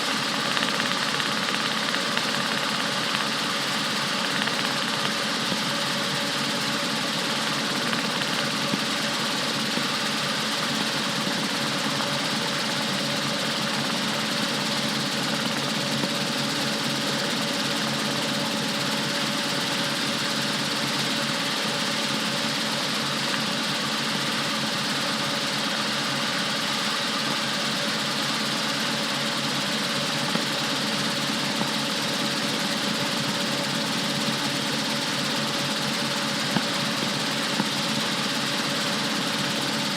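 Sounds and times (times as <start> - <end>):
helicopter engine and rotors drone: 0.0 - 39.9.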